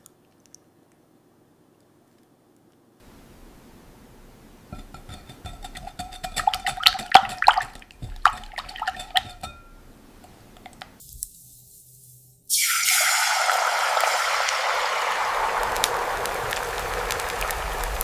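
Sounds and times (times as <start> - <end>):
utensil clinking on a dish: 4.7 - 10.9.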